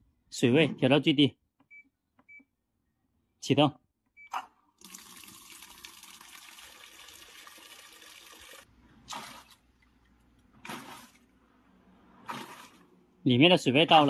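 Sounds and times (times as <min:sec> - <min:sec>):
water rushing into washing machine: 0:04.8 - 0:13.1.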